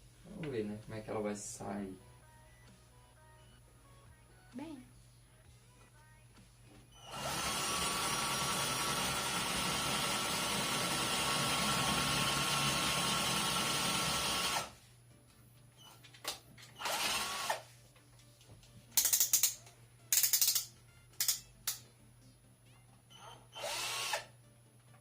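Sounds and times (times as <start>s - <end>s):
cordless drill boring into brick: 7.0s - 14.7s, 16.8s - 17.6s, 23.3s - 24.3s.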